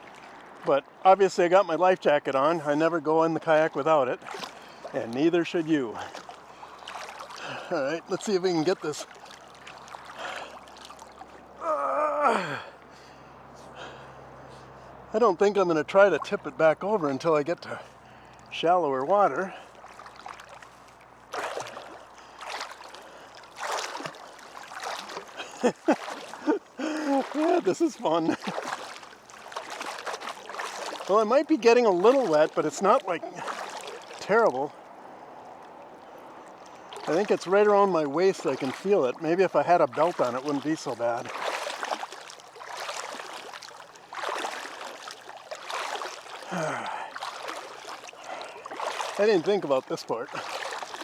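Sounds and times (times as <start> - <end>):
water sloshing and splashing: 0.0 - 51.0
person grunting: 11.6 - 12.7.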